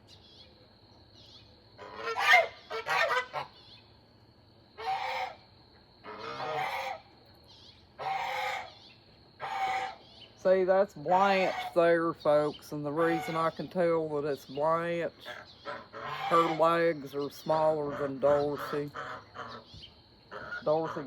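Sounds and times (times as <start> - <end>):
waterfowl honking: 1.8 - 3.7, 4.8 - 5.4, 6.0 - 7.1, 8.0 - 8.8, 9.4 - 10.1, 11.2 - 11.9, 12.9 - 13.8, 14.8 - 19.7, 20.3 - 21.0.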